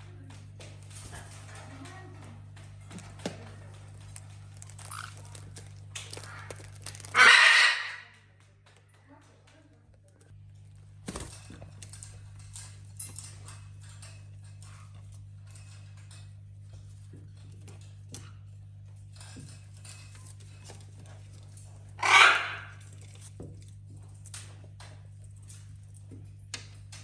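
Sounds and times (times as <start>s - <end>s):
beaks and claws tapping toys: 0.0s - 21.9s
parrot squawk: 6.1s - 8.2s, 22.0s - 22.8s.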